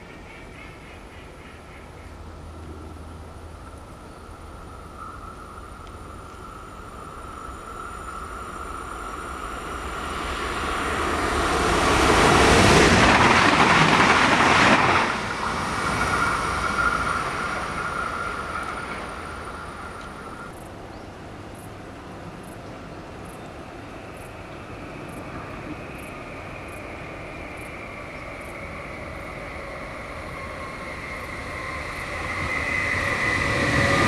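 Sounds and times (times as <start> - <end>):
electric train passing at speed: 0.0 - 34.0
steady high whine: 24.3 - 34.0.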